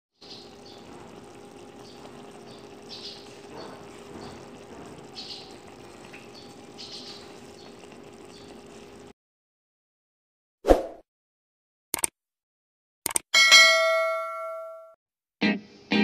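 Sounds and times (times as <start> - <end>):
steady low hum: 0.3 - 9.1.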